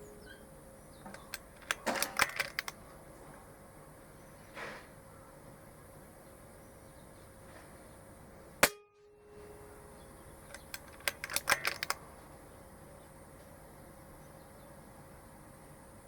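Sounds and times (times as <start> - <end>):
metallic clicks: 1.0 - 2.8, 10.4 - 12.1
air rifle firing: 1.1 - 2.8, 10.5 - 12.0.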